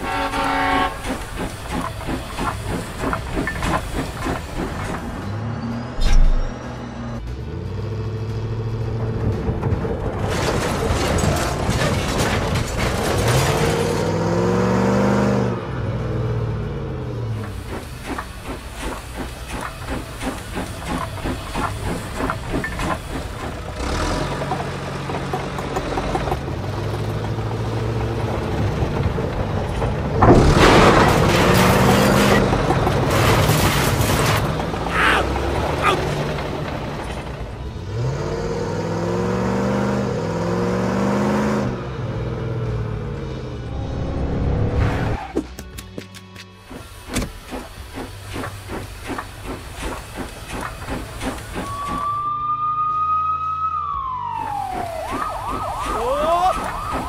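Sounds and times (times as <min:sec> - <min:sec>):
train whistle: 0:00.0 - 0:01.3, 0:51.6 - 0:54.0
steam locomotive chuffing: 0:00.0 - 0:05.3, 0:17.4 - 0:26.8, 0:46.7 - 0:52.2
train chugging and clacking: 0:00.0 - 0:05.5, 0:17.3 - 0:38.0, 0:46.6 - 0:52.2
bulldozer engine running: 0:00.0 - 0:53.1, 0:53.9 - 0:57.0.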